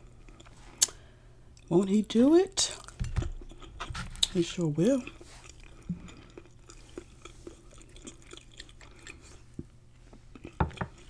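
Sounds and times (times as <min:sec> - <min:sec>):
quiet chewing with mouth clicks: 0:00.0 - 0:01.7, 0:02.7 - 0:11.0.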